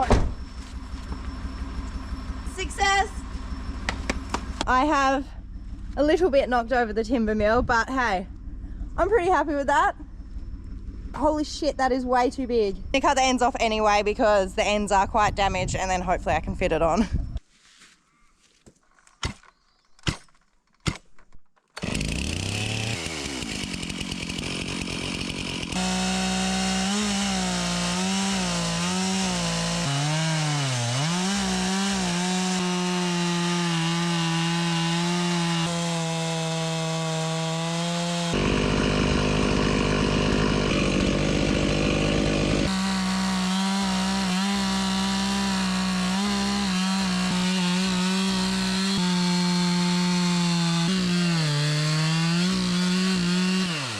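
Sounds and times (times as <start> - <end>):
chainsaw cutting log: 3.8 - 5.1, 21.7 - 53.9.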